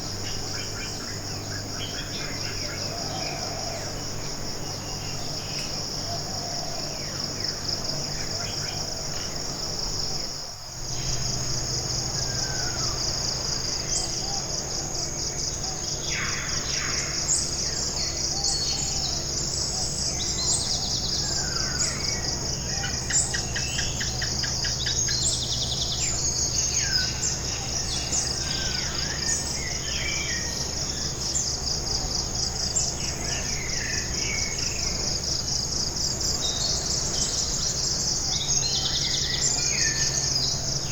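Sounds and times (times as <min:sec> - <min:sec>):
insects chorus: 0:00.0 - 0:40.9
bird calls and chirps: 0:10.9 - 0:35.4, 0:36.1 - 0:40.9.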